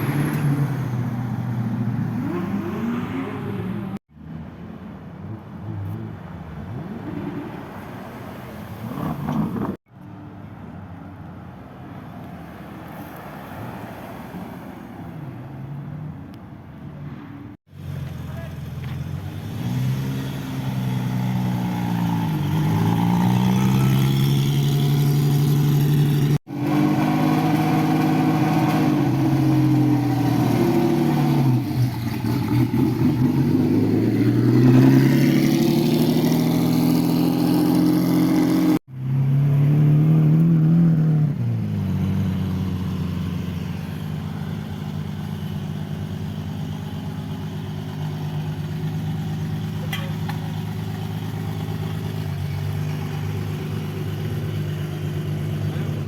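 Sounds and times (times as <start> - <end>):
sports car engines revving past: 0.0 - 4.4, 19.0 - 47.0.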